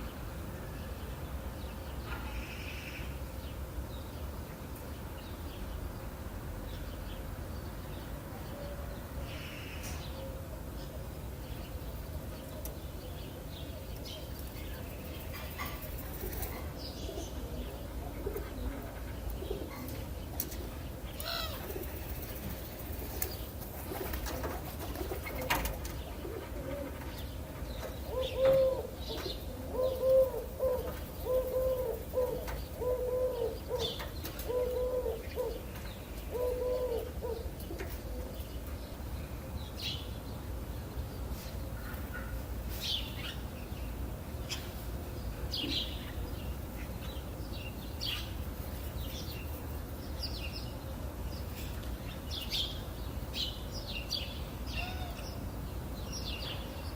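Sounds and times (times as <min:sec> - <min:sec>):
small birds chirping: 0:00.0 - 0:56.9
dove cooing: 0:15.6 - 0:20.0, 0:23.9 - 0:27.2, 0:28.0 - 0:38.4.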